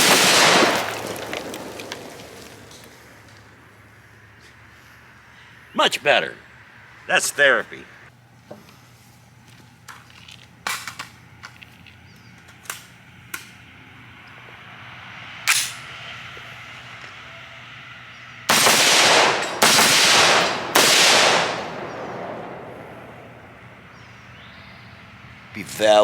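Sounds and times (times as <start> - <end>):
rapid gunfire: 0.0 - 1.1, 18.5 - 23.0
pistol gunshots: 0.0 - 2.7, 18.5 - 23.9.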